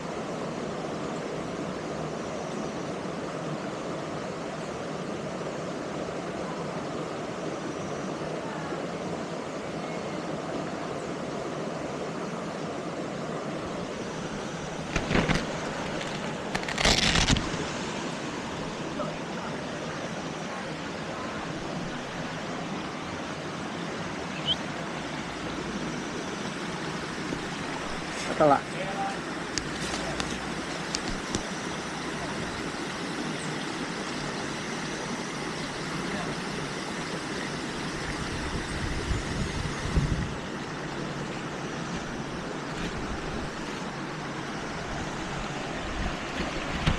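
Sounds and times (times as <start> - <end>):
waterfall rushing: 8.2 - 46.9
waterfall pouring into pool: 27.5 - 38.8.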